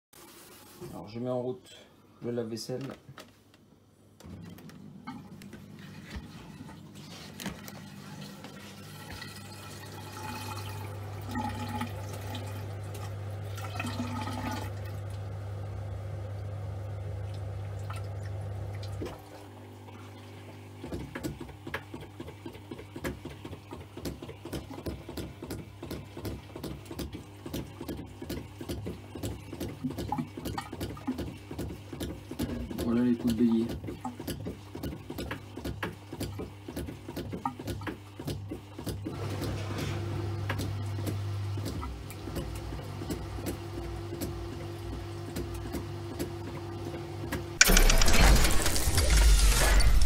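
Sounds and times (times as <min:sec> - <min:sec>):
dishwasher humming: 0:04.1 - 0:50.0
water filling: 0:06.3 - 0:15.1.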